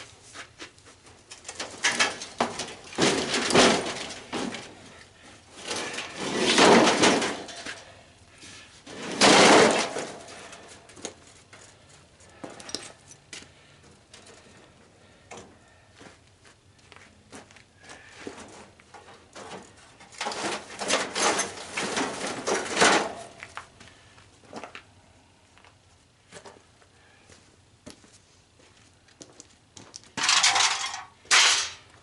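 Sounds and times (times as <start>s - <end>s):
scraping and rattling: 1.2s - 13.2s, 18.3s - 23.5s, 30.2s - 31.9s.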